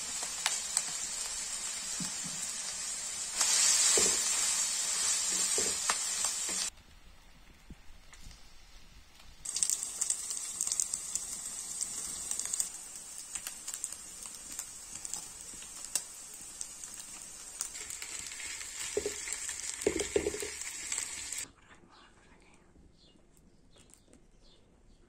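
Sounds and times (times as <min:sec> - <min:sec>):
meat sizzling in a pan: 0:00.0 - 0:06.7, 0:09.4 - 0:21.5
crackles and pops: 0:00.1 - 0:02.5, 0:05.3 - 0:21.5.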